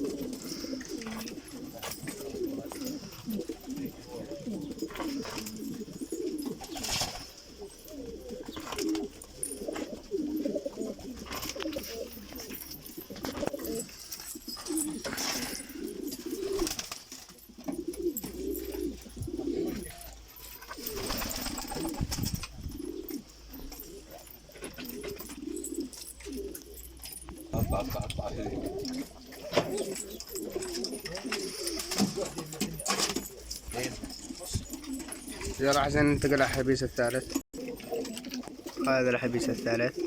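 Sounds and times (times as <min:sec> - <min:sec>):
pigeons cooing: 0:00.0 - 0:40.0
sharp rustles and clicks: 0:00.1 - 0:39.9.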